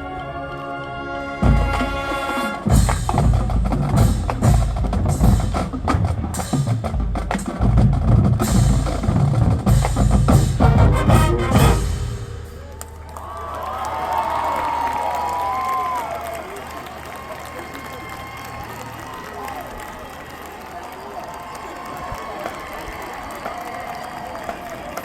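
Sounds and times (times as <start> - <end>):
marching drumline playing: 1.3 - 12.7.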